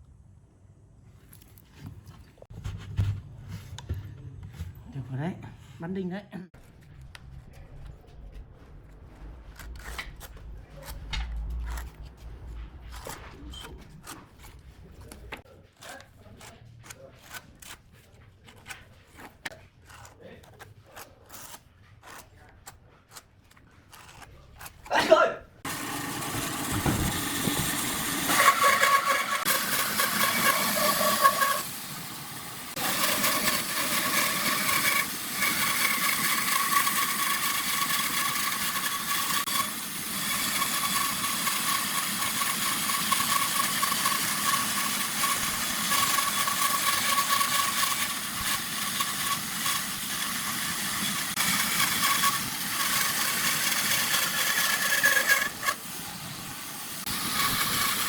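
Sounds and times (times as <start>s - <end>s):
electric power tool whining: 25.7s - 58.0s.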